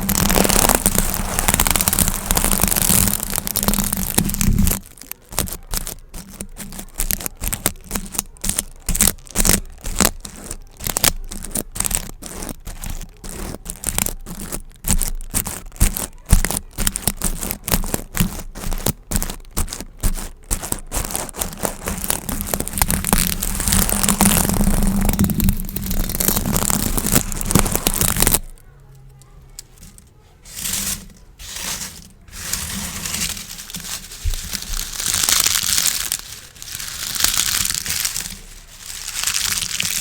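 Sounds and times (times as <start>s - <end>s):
gift ribbon crinkling: 0.0s - 28.6s, 29.6s - 40.0s.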